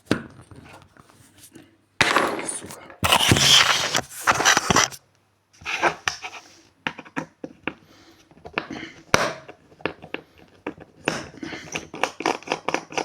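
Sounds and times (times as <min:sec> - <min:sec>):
hard objects clicking and knocking: 0:02.0 - 0:05.0.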